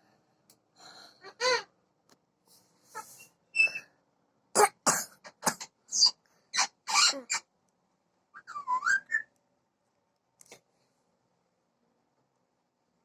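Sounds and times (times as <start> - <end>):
parrot rasping calls: 5.6 - 7.4
parrot whistling: 8.4 - 9.3.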